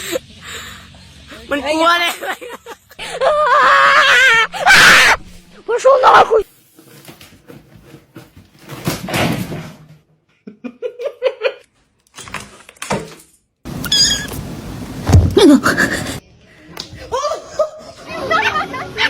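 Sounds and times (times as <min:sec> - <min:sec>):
cat vocalising: 0:13.7 - 0:14.5.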